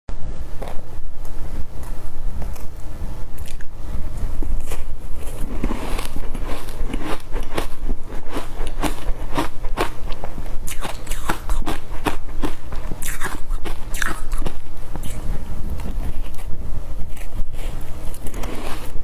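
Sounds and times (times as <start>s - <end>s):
ice being chewed: 4.5s - 19.0s.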